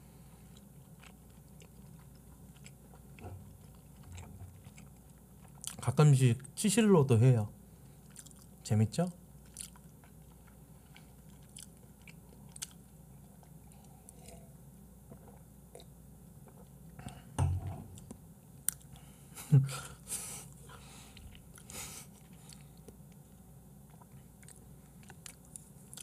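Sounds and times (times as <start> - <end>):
person chewing: 0.5 - 5.8, 8.0 - 8.6, 9.4 - 17.3, 17.9 - 19.0, 20.6 - 26.0.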